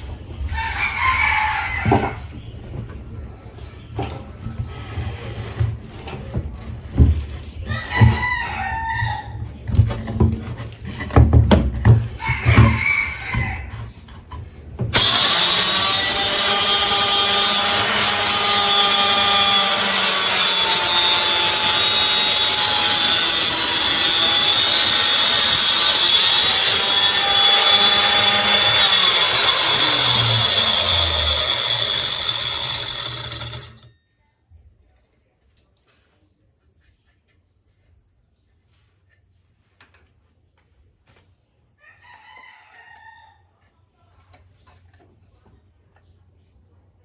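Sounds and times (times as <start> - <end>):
circular saw cutting wood: 14.9 - 33.9.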